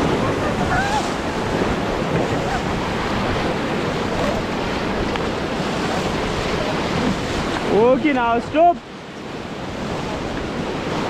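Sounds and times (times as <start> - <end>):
river rapids rushing: 0.0 - 11.0
wind buffeting microphone: 0.0 - 11.0.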